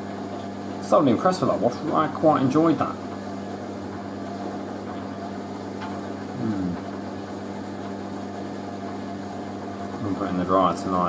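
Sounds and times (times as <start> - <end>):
low electrical hum: 0.0 - 11.0
person murmuring: 6.3 - 6.8.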